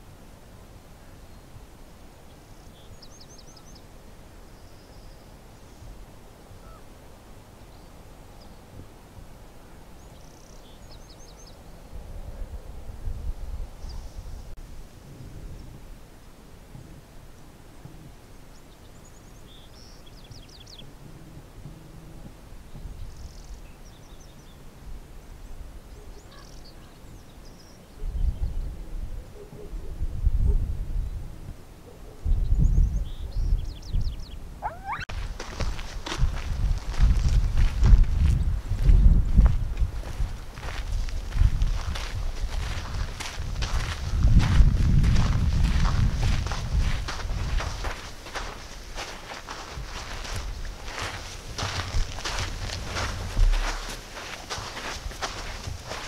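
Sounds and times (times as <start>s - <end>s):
small birds chirping: 2.3s - 5.9s, 10.0s - 11.8s, 18.5s - 20.9s, 25.4s - 28.7s, 32.3s - 39.2s, 45.8s - 56.0s
wind buffeting microphone: 11.8s - 17.2s, 28.0s - 31.6s, 32.2s - 56.0s
small bird chirping: 32.6s - 35.1s
buzzy bird trill: 34.6s - 35.1s.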